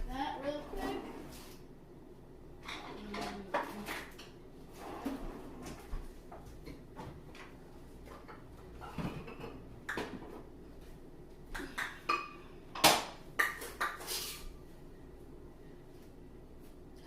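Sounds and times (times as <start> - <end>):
dishes and utensils clinking: 8.8 - 10.2.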